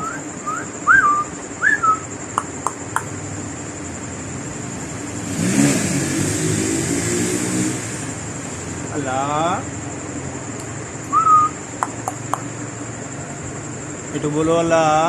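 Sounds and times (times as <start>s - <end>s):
bird whistling: 0.0s - 3.1s, 11.1s - 12.4s
sharp clicks: 2.3s - 3.1s, 11.8s - 12.5s
passing vehicle engine: 2.5s - 14.2s.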